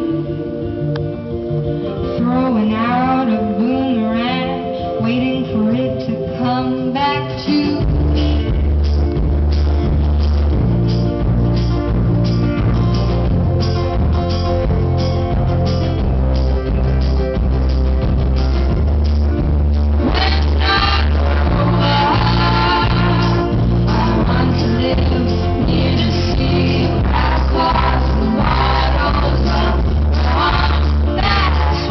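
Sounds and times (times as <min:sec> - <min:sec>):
live band music: 0:00.0 - 0:31.9
woman singing: 0:02.1 - 0:08.6, 0:20.0 - 0:31.9
heavy bass and steady beat: 0:07.8 - 0:31.9.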